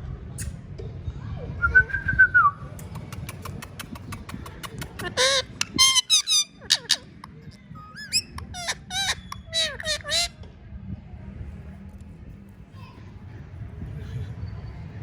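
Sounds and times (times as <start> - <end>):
parrot clicking: 2.8 - 10.3
parrot squawking: 4.3 - 10.3
parrot whistling: 5.0 - 7.1, 7.8 - 10.3.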